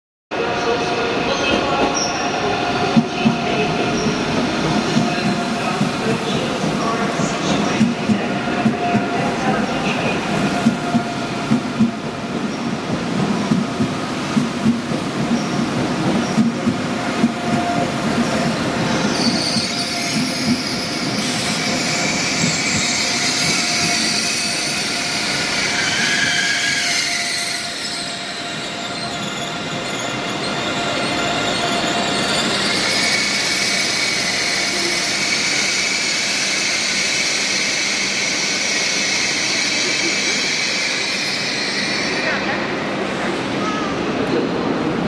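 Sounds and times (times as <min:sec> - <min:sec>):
train wheels squealing: 0:18.8 - 0:42.6.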